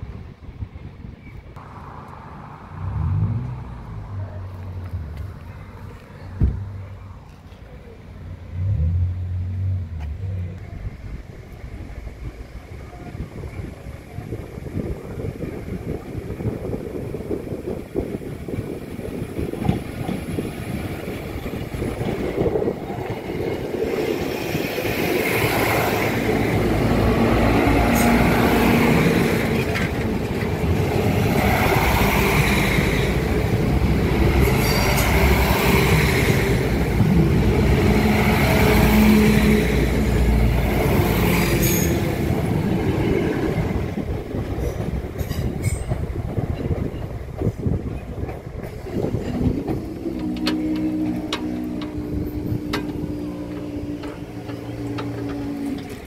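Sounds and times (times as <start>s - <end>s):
diesel train engine hum: 0.0s - 56.0s
train wheel noise: 10.0s - 56.0s.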